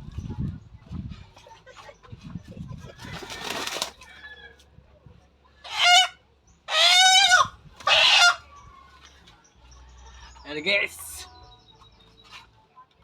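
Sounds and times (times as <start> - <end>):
chicken squawking: 5.7 - 8.4.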